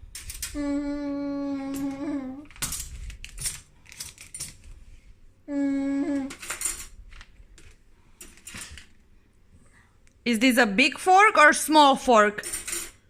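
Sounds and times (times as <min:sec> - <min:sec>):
person humming: 0:00.5 - 0:02.5, 0:05.5 - 0:06.4
metal cutlery clinking: 0:02.6 - 0:04.7, 0:12.4 - 0:13.0.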